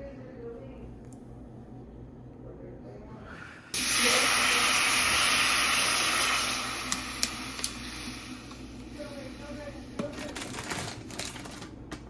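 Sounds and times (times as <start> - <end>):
water gushing: 3.8 - 7.5.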